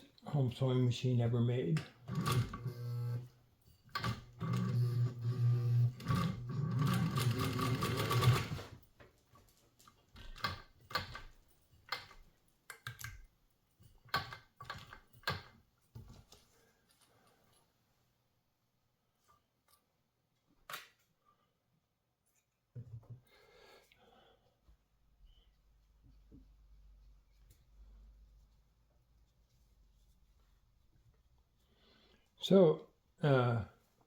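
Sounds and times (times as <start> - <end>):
sewing machine stitching: 2.0 - 3.3, 3.9 - 8.8.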